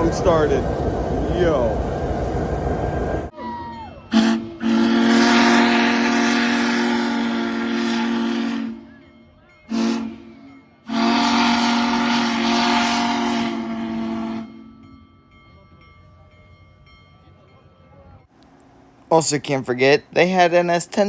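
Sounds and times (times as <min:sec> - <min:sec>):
steam whistle blasts: 0:03.4 - 0:09.0, 0:09.7 - 0:14.8.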